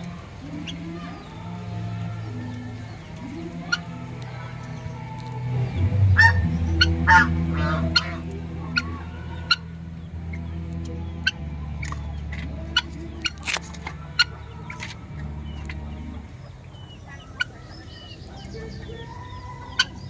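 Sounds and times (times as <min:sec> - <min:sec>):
low steady drone: 0:00.0 - 0:20.0
poultry peeping: 0:00.0 - 0:20.0
sharp clicks: 0:11.8 - 0:14.0.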